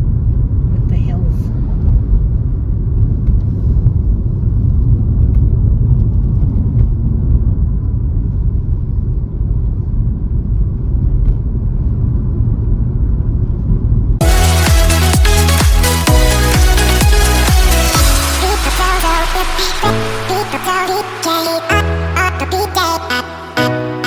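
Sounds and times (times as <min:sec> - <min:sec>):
electronic dance music: 0:14.2 - 0:24.0.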